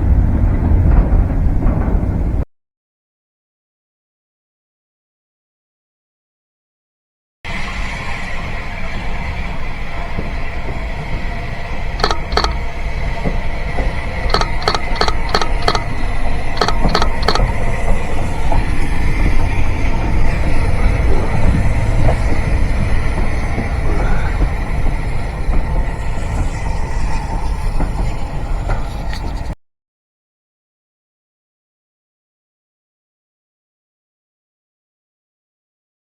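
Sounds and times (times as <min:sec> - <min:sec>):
train rumbling past: 0:00.0 - 0:02.4, 0:07.5 - 0:29.6
wheels clicking over rail joints: 0:09.9 - 0:29.6.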